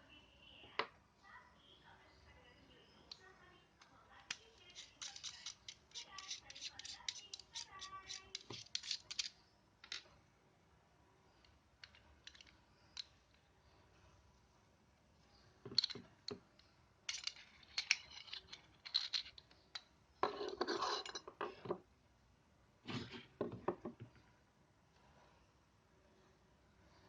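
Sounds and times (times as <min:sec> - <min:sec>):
pistol parts clicking and clinking: 0:04.3 - 0:10.1, 0:11.8 - 0:13.2, 0:15.7 - 0:16.4, 0:17.1 - 0:19.9
scraping of metal parts: 0:04.6 - 0:09.3, 0:17.1 - 0:19.4, 0:20.2 - 0:21.6.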